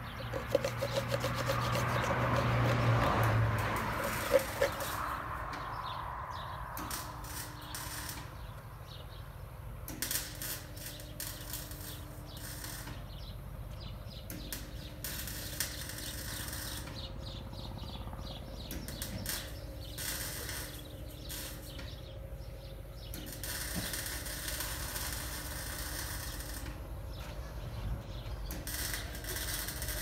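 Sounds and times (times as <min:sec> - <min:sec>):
rapid mechanical clicking: 0:00.2 - 0:05.1.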